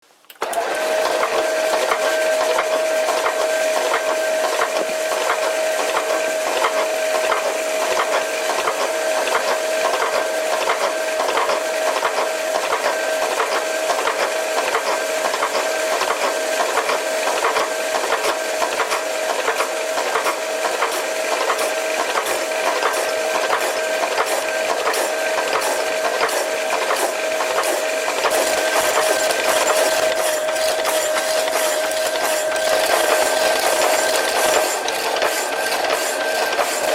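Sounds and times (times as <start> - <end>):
metal lathe whining: 0.4 - 36.9.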